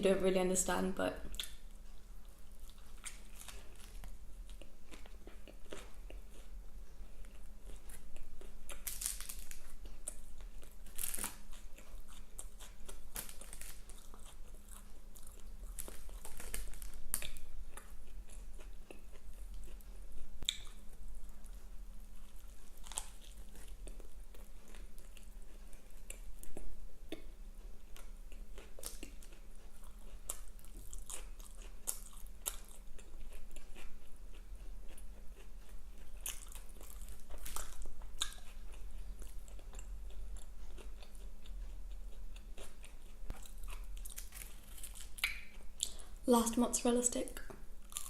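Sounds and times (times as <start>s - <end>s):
chewing crunchy fried food: 1.3s - 48.0s
wet mouth clicks: 45.2s - 46.0s.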